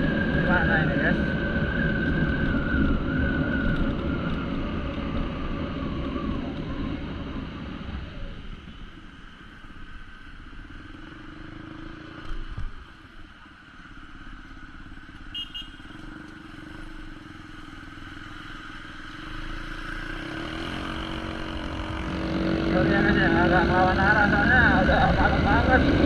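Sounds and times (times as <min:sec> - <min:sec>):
road and wind noise: 0:00.0 - 0:26.0
motorcycle engine running: 0:10.4 - 0:26.0.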